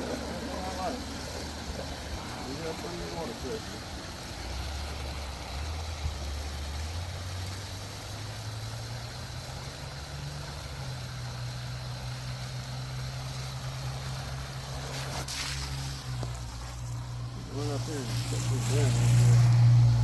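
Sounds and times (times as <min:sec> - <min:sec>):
hose water rushing into bucket: 0:00.0 - 0:20.0
low hollow hum rising in pitch: 0:16.4 - 0:20.0.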